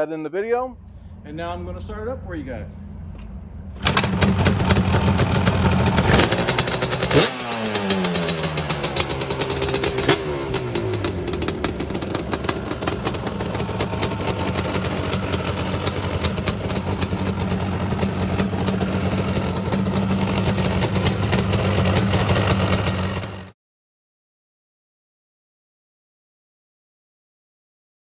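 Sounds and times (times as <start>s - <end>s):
two-stroke engine idling: 3.7s - 23.5s.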